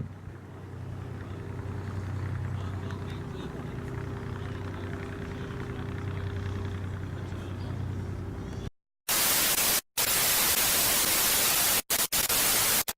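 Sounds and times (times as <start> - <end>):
steady low hum: 0.0 - 8.7
white noise static hiss: 9.1 - 12.9.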